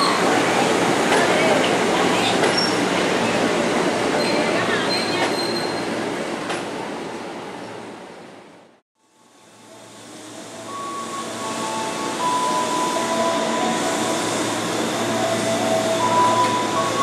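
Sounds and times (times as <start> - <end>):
train cars rumbling on track: 0.0 - 7.0.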